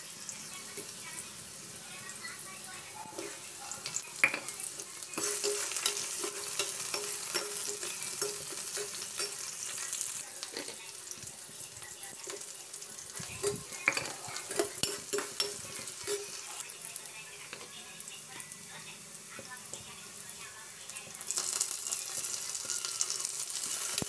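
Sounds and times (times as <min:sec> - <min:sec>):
steel spoon scraping wok: 0:00.0 - 0:16.7, 0:21.2 - 0:24.0
vegetables sizzling in oil: 0:00.0 - 0:24.0.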